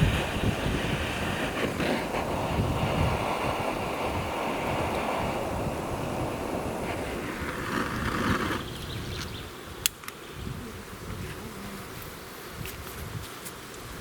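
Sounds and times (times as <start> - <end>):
hiss: 0.0 - 8.7
flying insects buzzing: 0.0 - 14.0.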